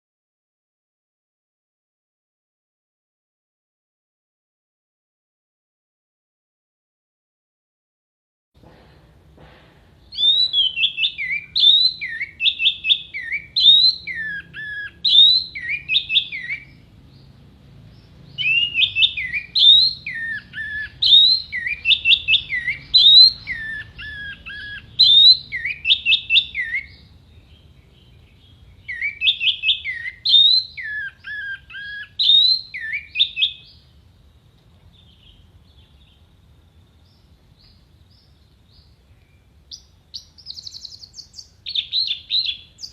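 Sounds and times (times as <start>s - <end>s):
faint low hum: 8.6s - 42.9s.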